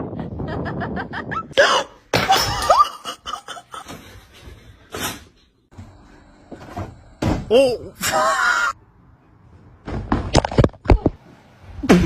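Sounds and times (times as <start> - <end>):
person laughing: 0.2 - 4.0.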